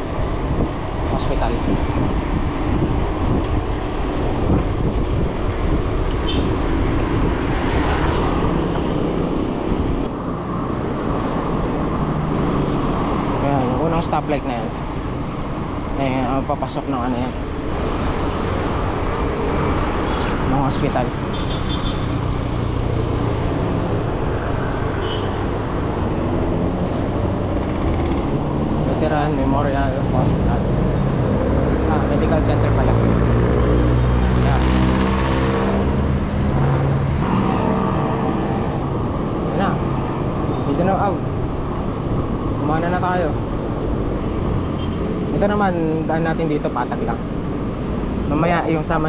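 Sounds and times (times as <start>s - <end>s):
wind rumble on microphone: 0.0s - 13.4s
road traffic noise: 0.0s - 49.0s
brief high tone: 37.2s - 38.8s.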